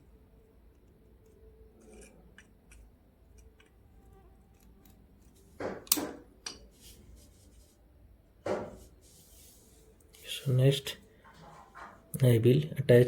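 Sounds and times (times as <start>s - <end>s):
small parts clicking: 0.7s - 6.6s.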